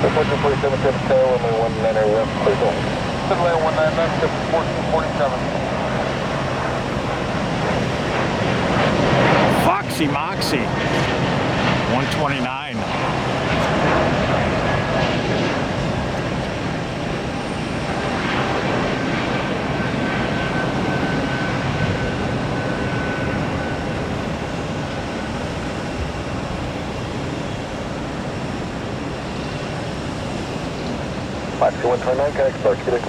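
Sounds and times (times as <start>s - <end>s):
high engine whine: 0.0s - 33.0s
jet engines rumbling: 0.0s - 33.0s.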